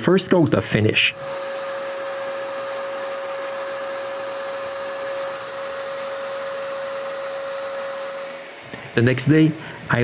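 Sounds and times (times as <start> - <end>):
spray gun hissing: 1.1 - 9.1.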